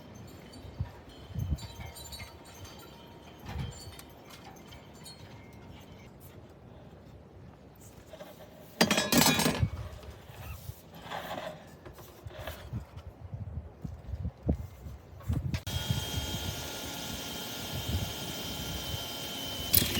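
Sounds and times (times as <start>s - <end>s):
hard parts clinking and clattering: 8.8s - 10.1s, 19.6s - 19.9s.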